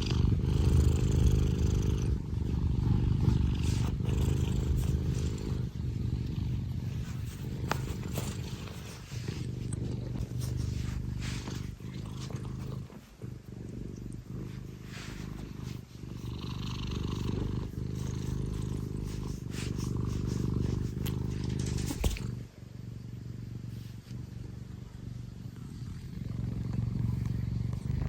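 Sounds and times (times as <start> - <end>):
cat purring loudly: 0.0 - 28.0.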